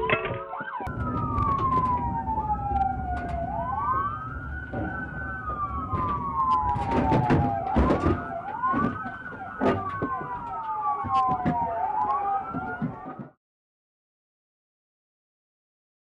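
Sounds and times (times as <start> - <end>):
sharp bangs and clatter: 0.0 - 11.6
police sirens wailing: 0.0 - 13.4.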